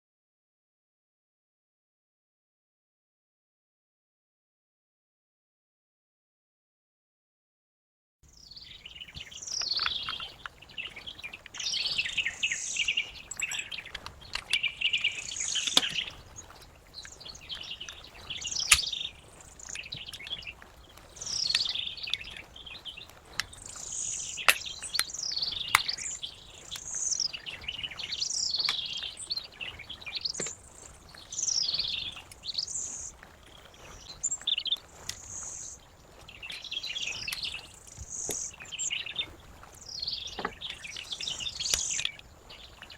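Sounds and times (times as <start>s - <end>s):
birds chirping and singing: 8.3s - 42.9s
sharp clicks: 9.5s - 17.2s, 17.8s - 22.4s, 23.0s - 27.3s.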